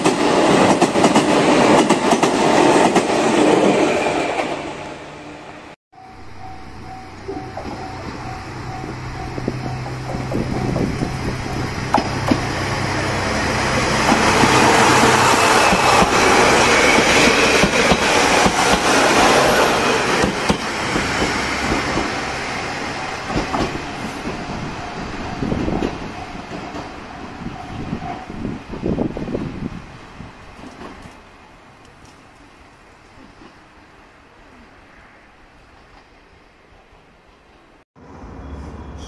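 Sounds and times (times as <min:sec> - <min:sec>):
passenger train rumble: 0:00.0 - 0:39.0
wheels clacking over rail joints: 0:06.4 - 0:28.2.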